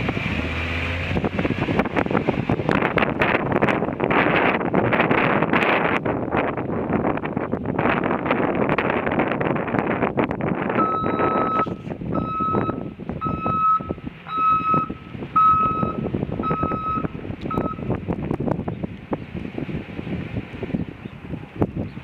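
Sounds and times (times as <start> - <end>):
wind buffeting microphone: 0.0 - 22.0
truck reversing alarm beeps: 10.8 - 18.0.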